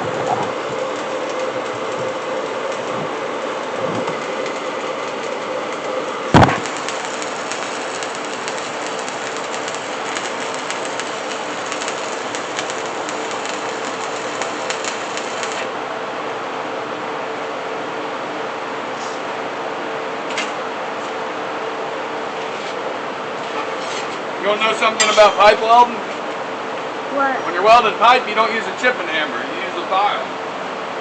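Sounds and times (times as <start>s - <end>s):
crackling welding hiss: 0.0s - 15.8s
machine hum: 0.0s - 17.0s
loud metallic bang: 6.3s - 7.0s.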